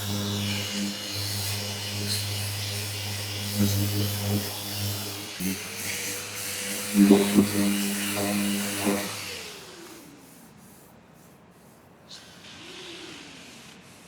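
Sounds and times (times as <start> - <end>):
power tool motor winding down: 0.0 - 10.2.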